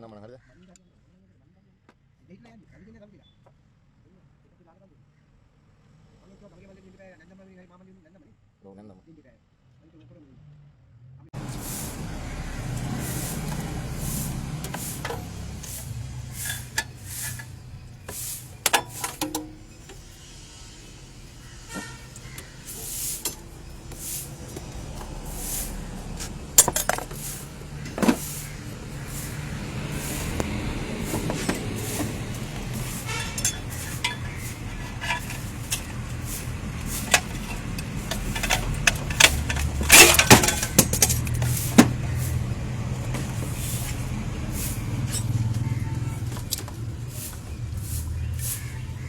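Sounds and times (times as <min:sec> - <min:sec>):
metal tools clinking: 0:11.4 - 0:42.4, 0:43.0 - 0:48.5.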